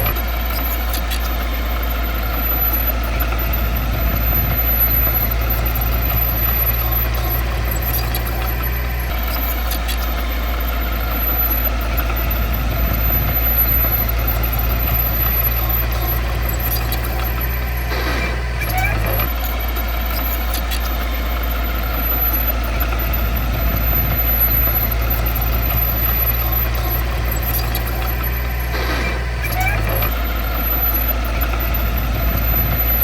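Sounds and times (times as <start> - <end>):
heavy diesel engine humming: 0.0 - 33.0.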